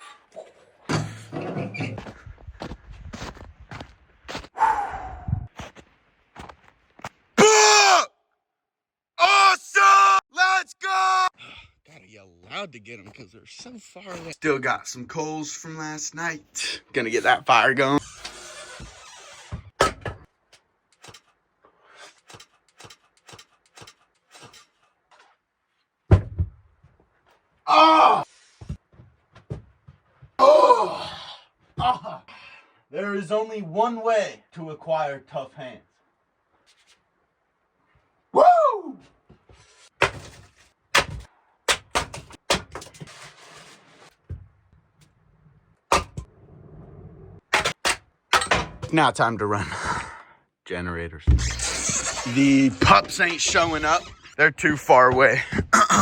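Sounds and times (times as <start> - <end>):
sharp knocks and thuds: 26.1 - 27.0, 28.6 - 30.4, 39.4 - 43.1, 45.9 - 46.3
rustling and scraping: 36.6 - 37.1, 39.3 - 41.3, 42.3 - 46.3.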